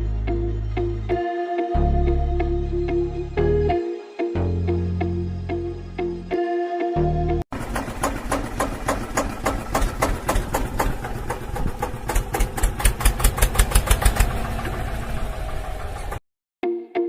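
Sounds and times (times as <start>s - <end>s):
diesel engine knocking: 7.5s - 16.2s.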